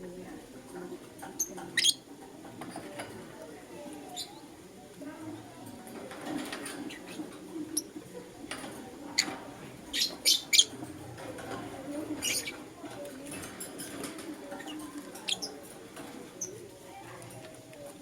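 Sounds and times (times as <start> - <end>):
bird chicks chirping: 1.1 - 2.1, 6.6 - 17.3.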